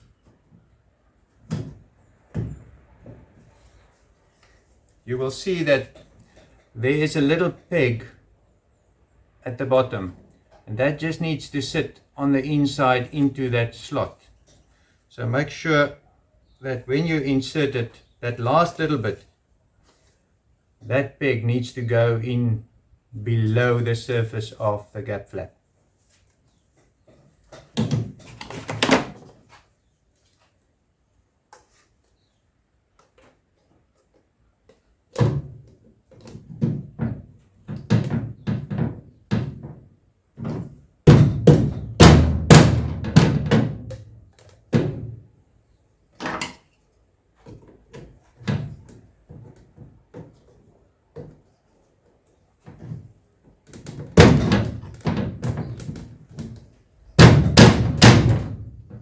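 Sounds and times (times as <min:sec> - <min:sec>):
mallet knocking plastic: 0:41.1 - 0:44.0.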